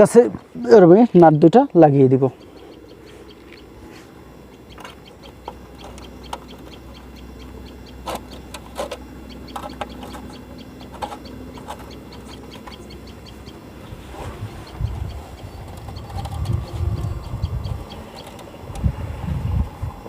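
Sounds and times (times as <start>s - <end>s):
low hum: 0.0s - 20.0s
light clicks and knocks of metal parts: 8.0s - 13.1s.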